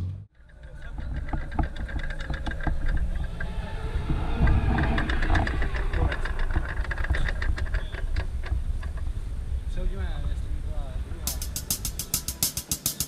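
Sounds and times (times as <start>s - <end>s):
car engine rumbling: 0.0s - 12.8s
short clicks and rattles: 0.4s - 3.5s.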